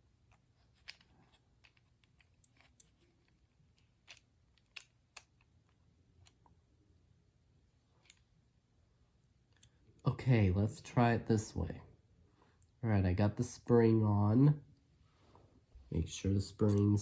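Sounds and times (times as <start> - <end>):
plastic toy parts clicking: 0.3 - 5.5.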